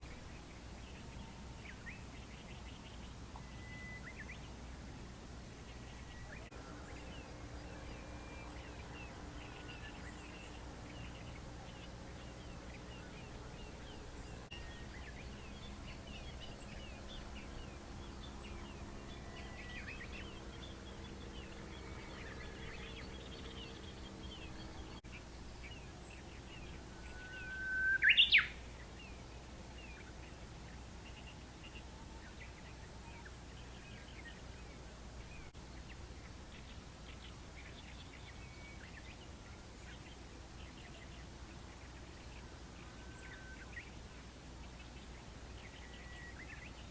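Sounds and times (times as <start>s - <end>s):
faint bird chirps: 0.0s - 4.7s, 5.6s - 46.9s
bird whistle rising in pitch: 27.0s - 28.6s.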